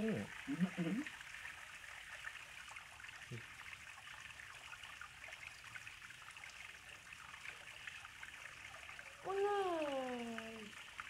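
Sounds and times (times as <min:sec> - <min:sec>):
river water trickling: 0:00.0 - 0:11.0.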